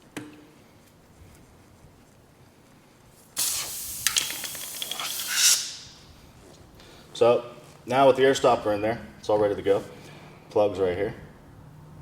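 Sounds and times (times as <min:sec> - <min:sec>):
air hissing from tire puncture: 0:03.4 - 0:06.2.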